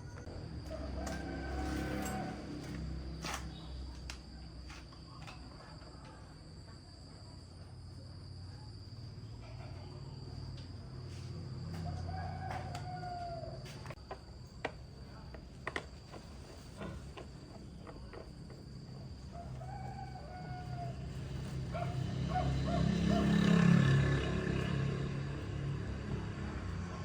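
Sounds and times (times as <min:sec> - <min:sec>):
rooster crowing: 0:00.0 - 0:03.0, 0:11.7 - 0:13.9, 0:19.2 - 0:24.2.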